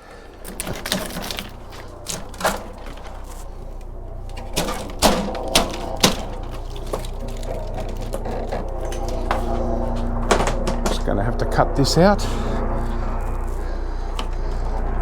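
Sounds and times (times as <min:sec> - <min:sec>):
computer parts clicking and knocking: 0:00.0 - 0:03.4, 0:04.3 - 0:09.4.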